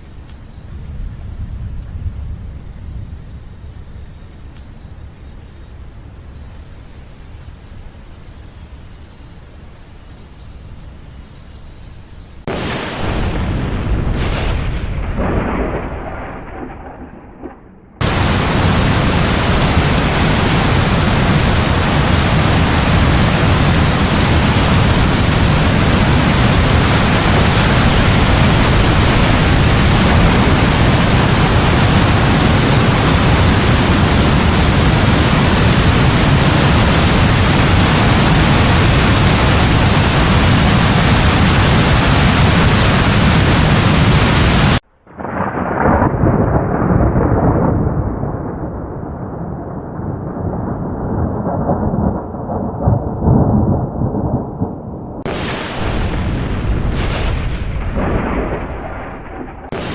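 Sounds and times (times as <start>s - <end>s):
thunderclap rolling: 0.0s - 3.6s, 12.4s - 59.9s
heavy rain falling: 0.0s - 11.3s, 12.4s - 59.9s
deep low rumble: 13.1s - 19.5s, 25.0s - 33.2s.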